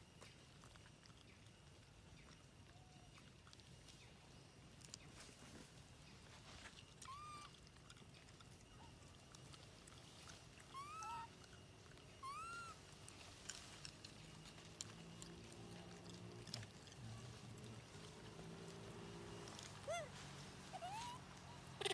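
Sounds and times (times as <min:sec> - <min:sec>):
low steady hum: 0:00.0 - 0:21.9
short animal calls: 0:10.7 - 0:11.4, 0:19.8 - 0:21.9.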